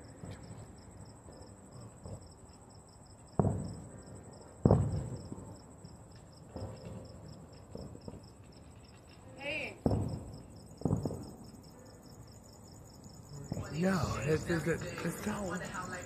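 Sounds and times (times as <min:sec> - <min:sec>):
crickets chirping: 0:00.0 - 0:16.0
firework bangs with rumbling echo: 0:03.3 - 0:08.6, 0:09.6 - 0:11.7.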